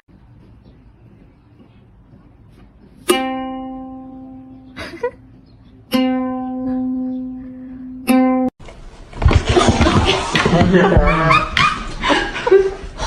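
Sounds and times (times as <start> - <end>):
plucked string note: 3.0 - 4.8, 5.9 - 8.5.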